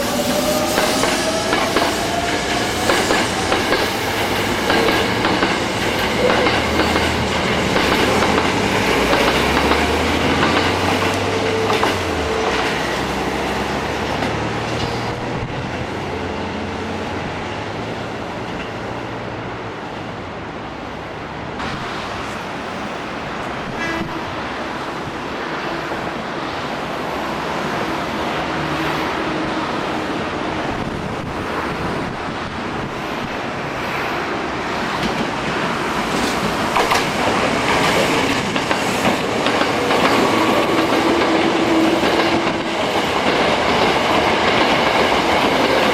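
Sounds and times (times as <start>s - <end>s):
train wheels clattering on rails: 0.0s - 15.8s, 34.7s - 45.9s.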